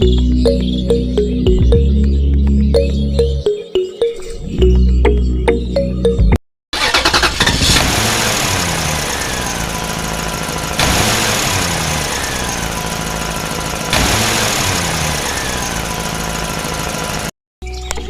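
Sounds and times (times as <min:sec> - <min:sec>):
machine engine noise: 0:06.8 - 0:17.3.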